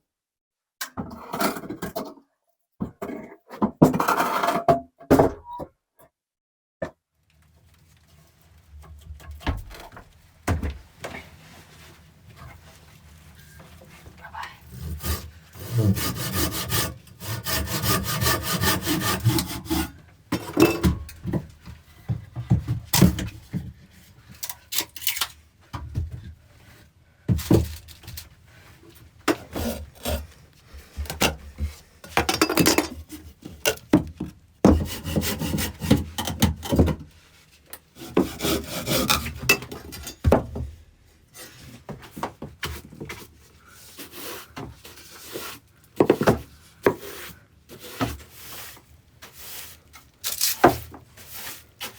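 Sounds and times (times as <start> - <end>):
wood rubbing and scraping: 7.7 - 22.9, 32.8 - 36.2, 38.0 - 39.4
hand saw strokes on wood: 14.6 - 20.0, 34.7 - 36.2, 38.0 - 39.5.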